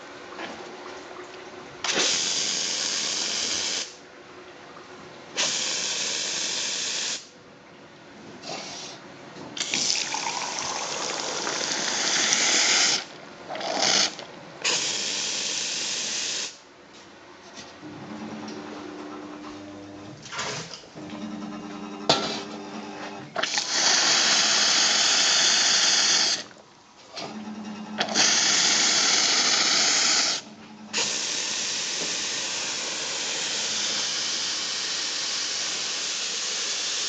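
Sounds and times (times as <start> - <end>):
steam hissing in bursts: 1.9 - 4.0, 5.4 - 7.3, 9.6 - 16.6, 23.4 - 26.4, 28.0 - 37.0.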